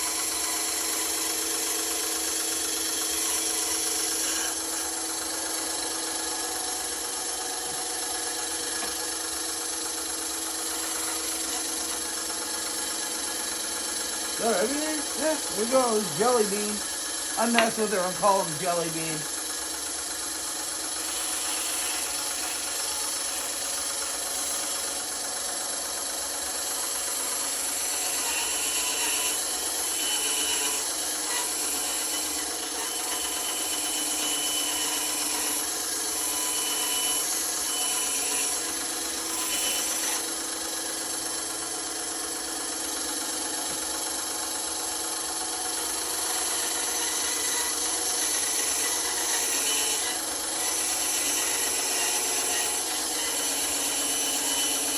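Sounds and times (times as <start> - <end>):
power tool whirring: 0.0 - 54.9
wood rasping: 10.6 - 18.9, 21.0 - 25.2, 26.8 - 40.4, 45.8 - 54.9.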